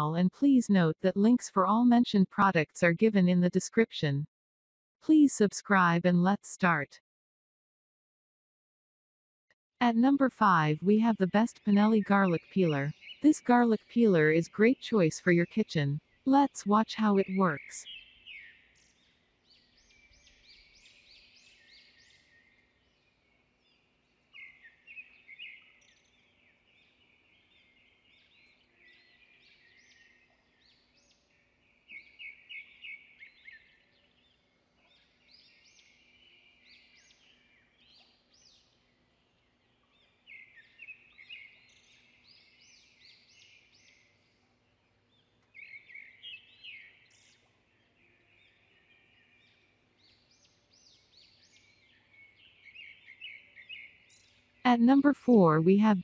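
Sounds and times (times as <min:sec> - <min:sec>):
small birds chirping and trilling: 0:11.5 - 0:13.8, 0:17.1 - 0:54.6.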